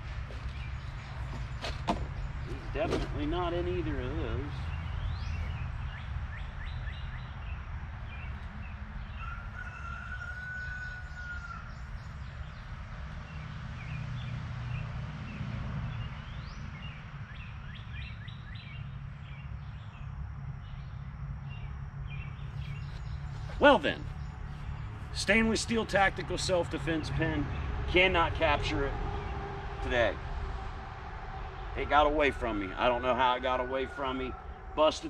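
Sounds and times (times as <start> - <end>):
steady low rumble: 0.0 - 9.2, 16.0 - 35.0
small birds chirping: 0.0 - 27.8
drawn-out whistle: 31.0 - 35.0.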